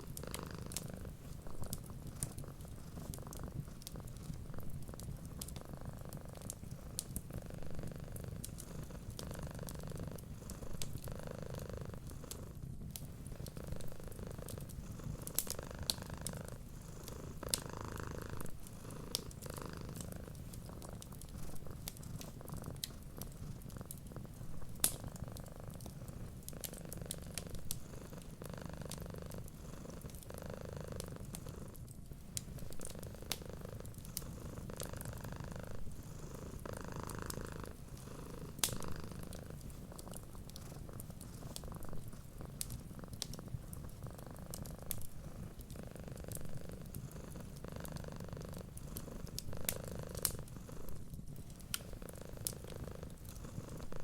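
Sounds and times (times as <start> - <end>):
wood fire crackling and popping: 0.0 - 11.2, 11.9 - 30.3, 30.9 - 54.0
cat purring: 0.0 - 54.0.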